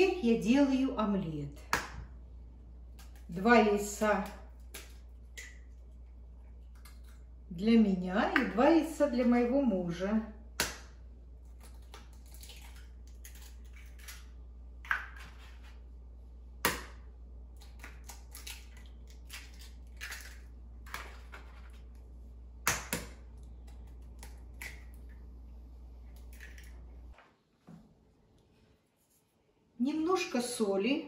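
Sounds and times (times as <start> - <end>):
eggs cracking against bowl: 4.1 - 7.4, 10.5 - 15.3, 16.6 - 22.0, 22.6 - 25.2, 26.1 - 26.9
eggshell crunching: 4.2 - 7.5, 10.6 - 15.4, 16.6 - 25.4.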